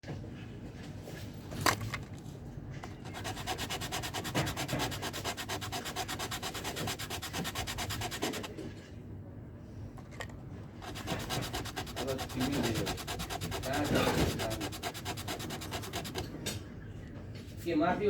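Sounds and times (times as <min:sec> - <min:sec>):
rapid back-and-forth scraping: 0:03.0 - 0:08.6, 0:10.8 - 0:16.4.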